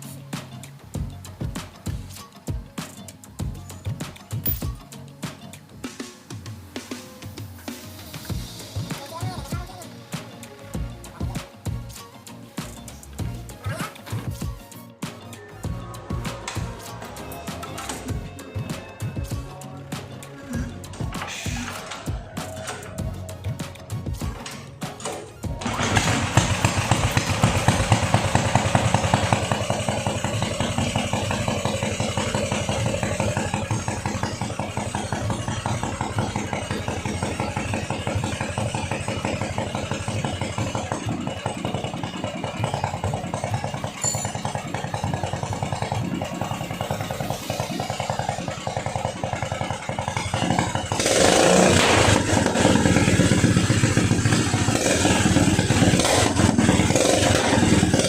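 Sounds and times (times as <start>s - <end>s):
boat engine running: 20.2s - 58.0s.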